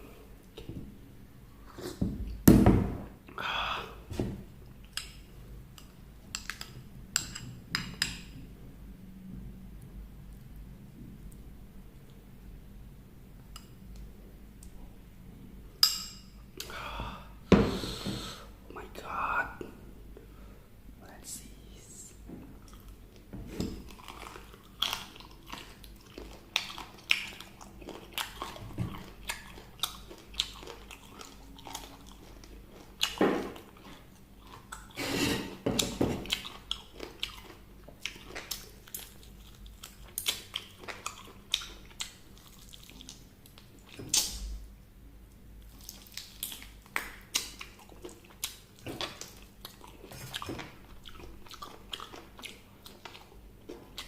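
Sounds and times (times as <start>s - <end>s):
chewing crispy fried chicken: 23.9s - 35.0s, 35.8s - 44.3s, 45.6s - 54.0s.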